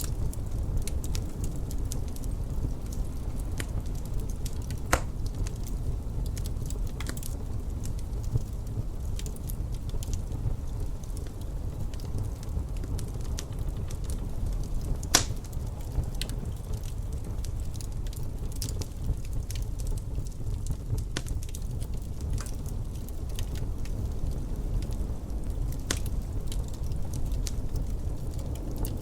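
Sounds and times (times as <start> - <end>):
steady low rumble: 0.0 - 29.0
wood fire crackling: 0.0 - 29.0.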